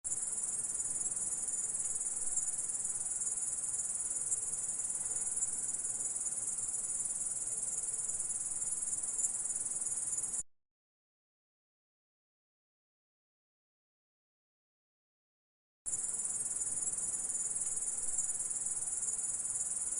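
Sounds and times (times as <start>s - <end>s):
grasshopper stridulating: 0.1s - 10.4s, 15.9s - 19.9s.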